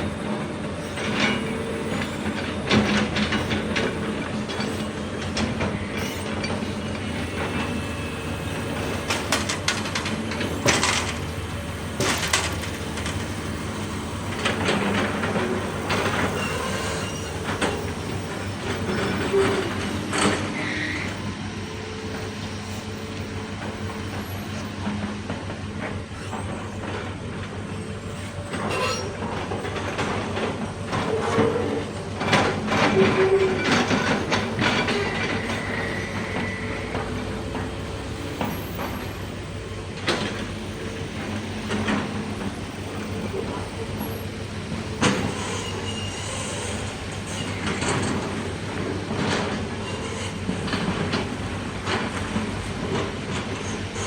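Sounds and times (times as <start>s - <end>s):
excavator diesel engine: 0.0s - 54.0s
short high squeaks: 16.3s - 17.5s, 28.2s - 29.2s, 45.3s - 47.6s.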